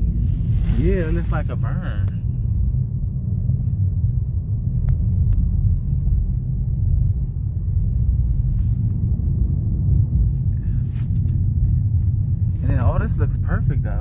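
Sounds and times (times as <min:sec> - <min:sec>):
road noise rumble: 0:00.0 - 0:14.0.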